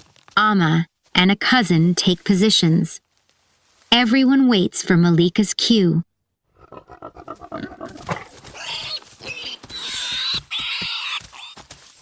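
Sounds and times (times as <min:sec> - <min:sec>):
warthog squealing: 0:06.6 - 0:11.6.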